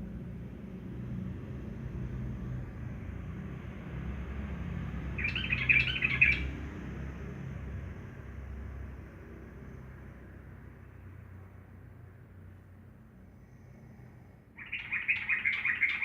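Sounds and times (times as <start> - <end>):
bird warbling: 5.2 - 6.4, 14.6 - 16.0.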